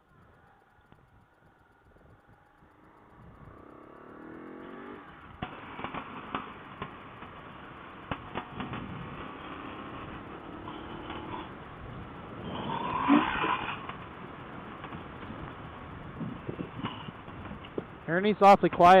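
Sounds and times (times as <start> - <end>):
motorcycle engine accelerating: 0.8 - 19.0
sharp clicks and knocks: 5.3 - 9.5.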